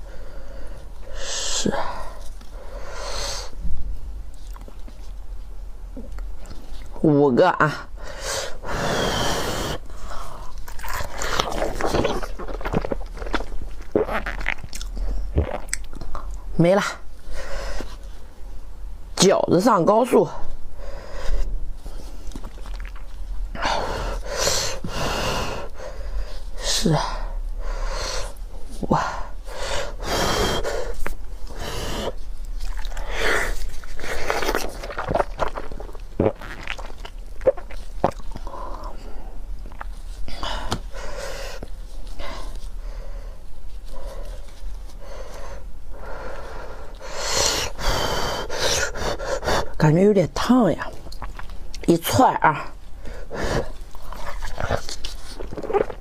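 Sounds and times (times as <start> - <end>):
person chewing food: 9.9 - 16.4, 21.9 - 25.0, 30.5 - 41.8, 51.0 - 51.8, 53.4 - 56.0
wet mouth clicks: 10.6 - 16.4, 51.0 - 51.9.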